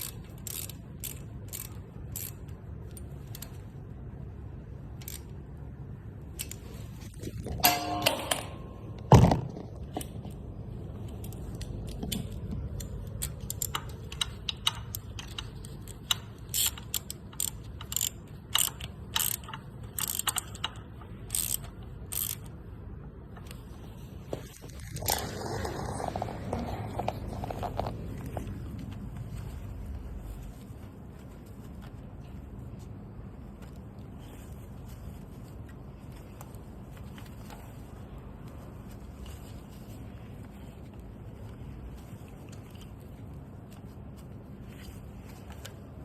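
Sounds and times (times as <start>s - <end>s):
metal tools clinking and scraping: 7.2s - 9.1s
rustling: 20.8s - 46.0s.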